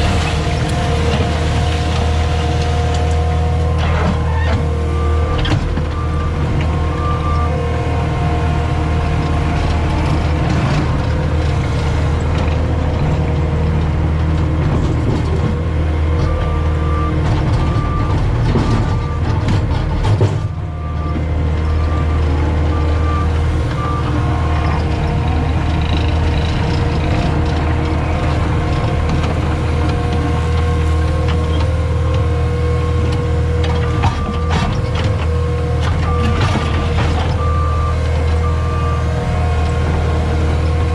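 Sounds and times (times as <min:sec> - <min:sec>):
diesel engine running under load: 0:00.0 - 0:40.9
reversing alarm beeping: 0:04.9 - 0:07.7, 0:16.2 - 0:19.4, 0:20.7 - 0:25.0, 0:33.9 - 0:34.7, 0:36.0 - 0:39.2.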